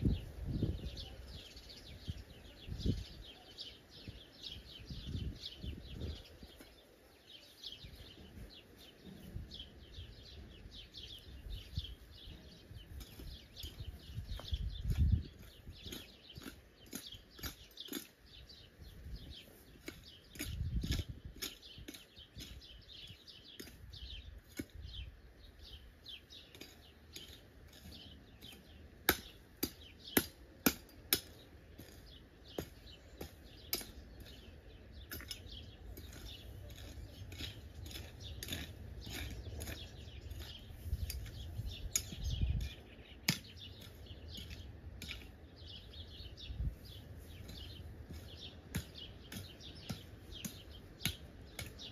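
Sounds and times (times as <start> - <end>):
birds chirping and singing: 0.0 - 51.9.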